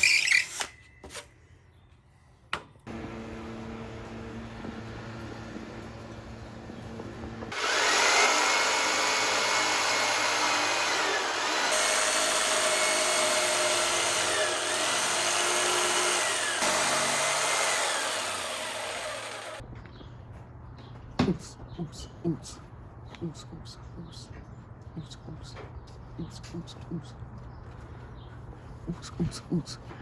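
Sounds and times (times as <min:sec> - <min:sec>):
power drill running under load: 0:07.5 - 0:19.6.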